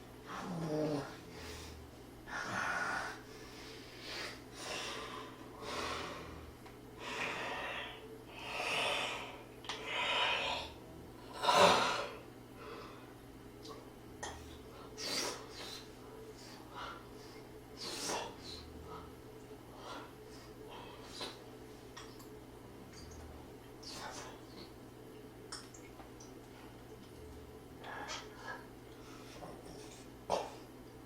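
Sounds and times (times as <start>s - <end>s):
hissy breaths and sniffs: 0.2s - 10.8s, 14.3s - 21.9s.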